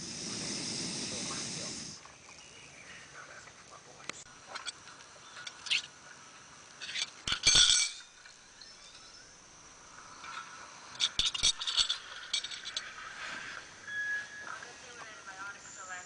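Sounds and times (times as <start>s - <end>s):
small hard objects clinking: 11.0s - 13.1s.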